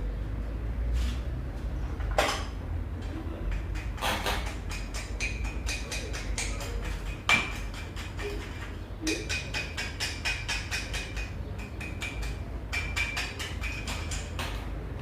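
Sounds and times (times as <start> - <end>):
rapid metallic clicking of hand tool: 3.5 - 14.6
sharp metal knock: 9.0 - 14.6.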